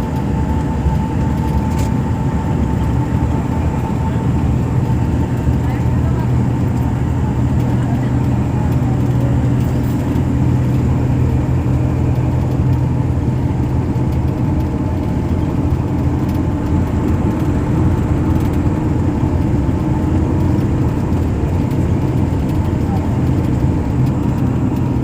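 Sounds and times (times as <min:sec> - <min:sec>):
motor vehicle rumble: 0:00.0 - 0:25.0.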